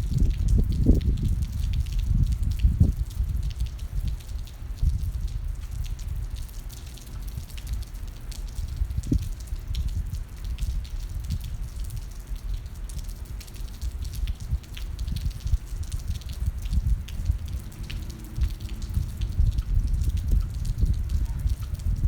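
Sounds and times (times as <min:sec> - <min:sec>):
rain drips and ticks: 0:00.0 - 0:22.0
low rumble: 0:16.7 - 0:22.0.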